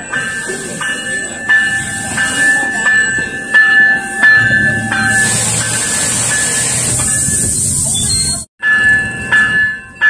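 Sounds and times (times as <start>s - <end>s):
bell striking: 0.0s - 7.7s
commuter train pulling in: 0.0s - 10.0s.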